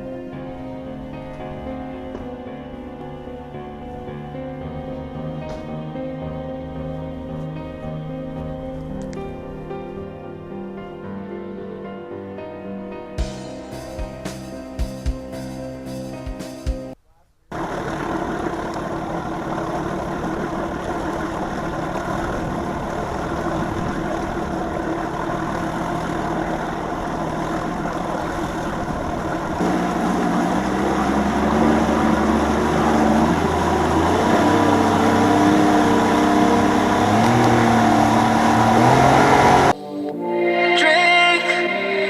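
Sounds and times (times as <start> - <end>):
deeper drone: 0.0 - 12.1, 17.5 - 40.7
vehicle engine running: 17.5 - 39.8.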